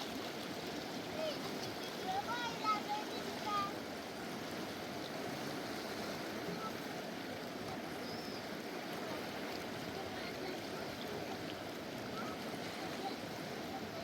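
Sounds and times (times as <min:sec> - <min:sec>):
mountain river rushing: 0:00.0 - 0:14.0.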